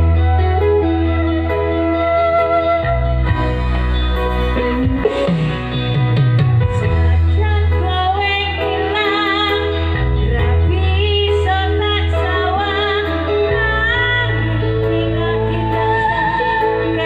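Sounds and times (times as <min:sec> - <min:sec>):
live band with steady bass: 0:00.0 - 0:17.0
woman singing with vibrato: 0:07.0 - 0:17.0.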